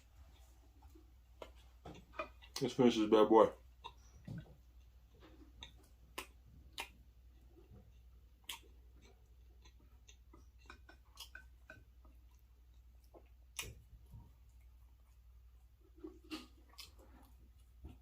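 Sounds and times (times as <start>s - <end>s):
mouth clicks and smacks chewing: 0.2s - 18.0s.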